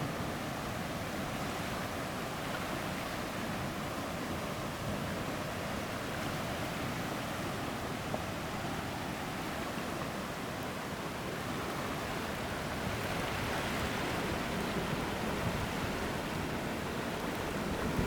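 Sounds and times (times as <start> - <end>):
floodwater rushing: 8.5 - 18.0.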